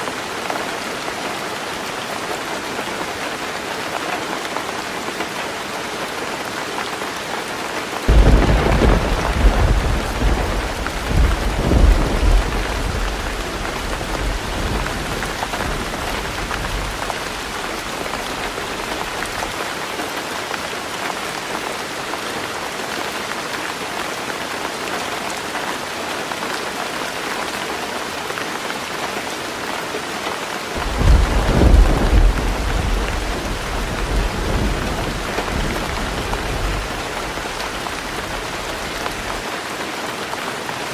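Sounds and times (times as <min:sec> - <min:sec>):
heavy rain on a roof: 0:00.0 - 0:40.9
thunder rolling: 0:08.1 - 0:19.2, 0:30.8 - 0:39.4.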